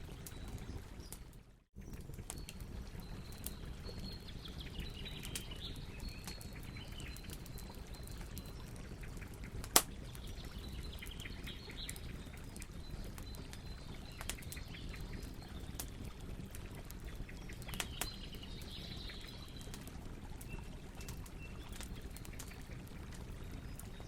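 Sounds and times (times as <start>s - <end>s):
campfire crackling: 0.0s - 24.0s
fire pops and snaps: 5.1s - 24.0s.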